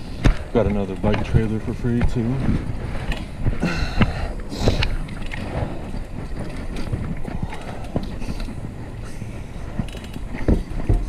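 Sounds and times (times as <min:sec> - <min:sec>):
bicycle road noise: 0:00.0 - 0:11.0
wind buffeting microphone: 0:00.0 - 0:11.0
short clicks and rattles: 0:04.7 - 0:11.0.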